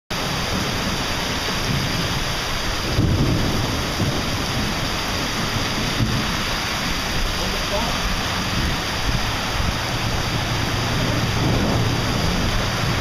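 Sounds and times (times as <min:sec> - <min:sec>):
heavy rain on a flooded street: 0:00.1 - 0:13.0
low rumble: 0:00.2 - 0:13.0.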